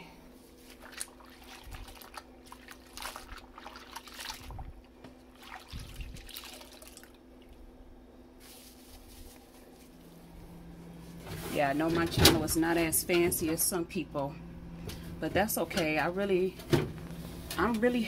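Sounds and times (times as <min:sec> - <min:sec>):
steady low hum: 0:00.0 - 0:18.0
food packages rustling: 0:08.4 - 0:10.3.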